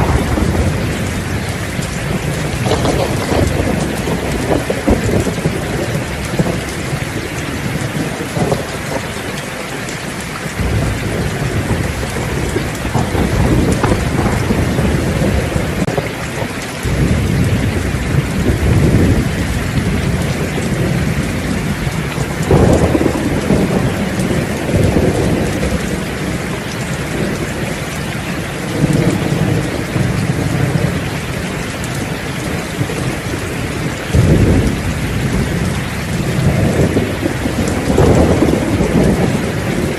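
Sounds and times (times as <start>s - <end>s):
heavy rain: 0.0s - 39.9s
rolling thunder: 0.0s - 39.9s.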